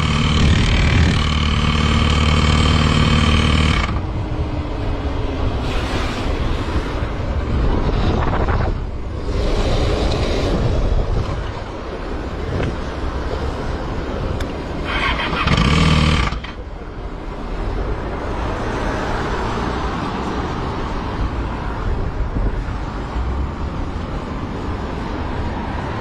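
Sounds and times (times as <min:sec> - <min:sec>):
wind noise: 0:00.0 - 0:01.5, 0:03.7 - 0:26.0
motorcycle engine rumble: 0:00.0 - 0:05.6.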